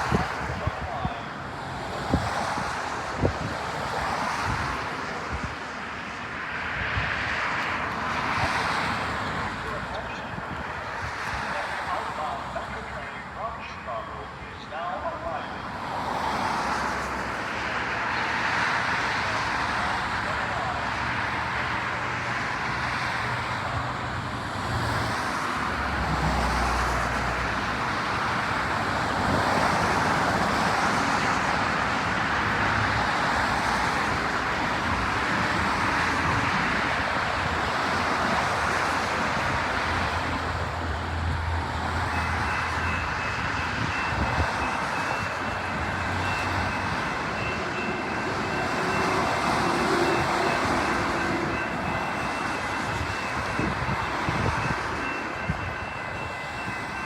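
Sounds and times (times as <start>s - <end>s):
train wheels rumbling on rail: 15.8s - 57.0s.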